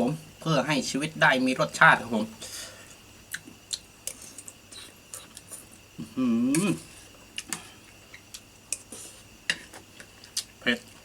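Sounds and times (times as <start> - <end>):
person humming mm: 6.0 - 6.9.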